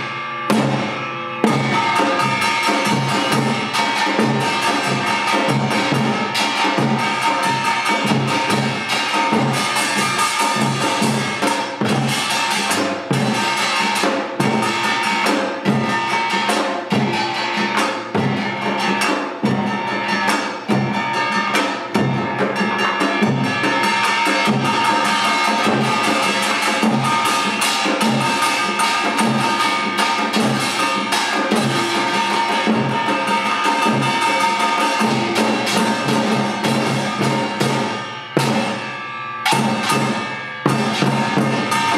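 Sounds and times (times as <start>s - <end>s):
barrel drum: 0.0s - 41.9s
hourglass drum: 0.0s - 41.9s
small gong: 0.0s - 41.9s
large gong ringing: 31.5s - 41.9s.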